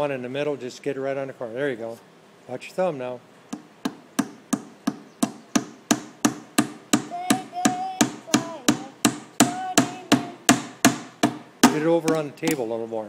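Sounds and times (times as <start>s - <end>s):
hammer driving nail into wood: 3.5s - 12.6s.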